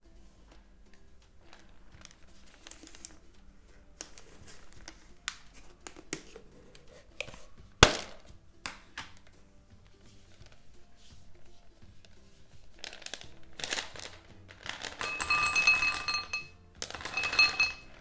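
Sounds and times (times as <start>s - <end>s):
crinkly packet crackling: 1.4s - 6.4s, 12.0s - 15.2s, 16.8s - 18.0s
packet tearing snap: 12.8s - 15.0s.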